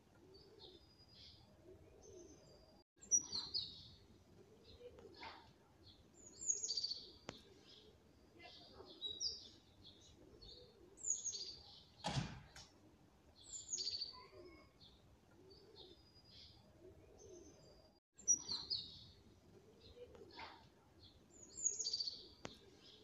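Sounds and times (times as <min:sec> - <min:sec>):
small birds chirping: 0:00.2 - 0:12.7, 0:13.3 - 0:23.0.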